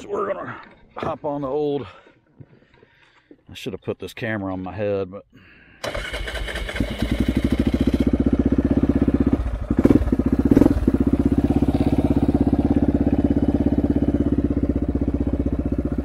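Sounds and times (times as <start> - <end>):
short engine bursts: 5.8 - 14.3
atv engine idling: 5.8 - 16.0.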